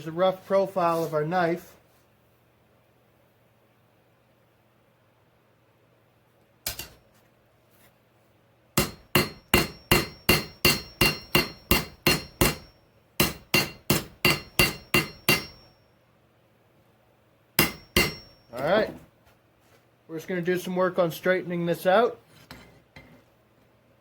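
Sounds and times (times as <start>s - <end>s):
hammer striking metal on anvil: 6.7s - 7.0s, 8.8s - 15.8s, 17.6s - 18.6s.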